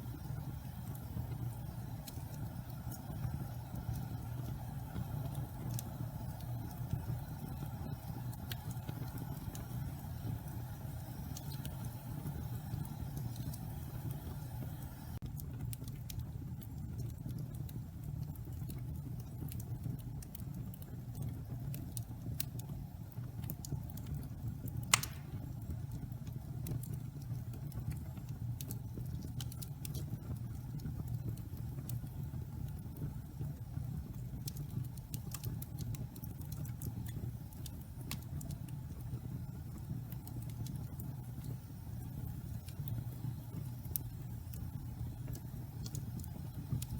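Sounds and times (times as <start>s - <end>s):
logs burning in a fireplace: 0.0s - 46.9s
loud pop of burning log: 24.9s - 25.6s.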